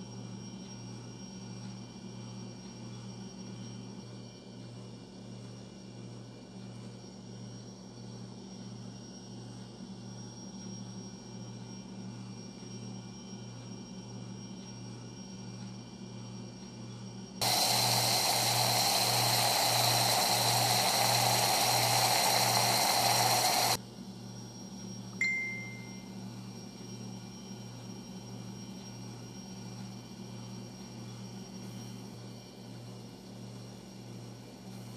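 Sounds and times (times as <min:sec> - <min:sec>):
loud rushing hiss: 0:17.4 - 0:23.8.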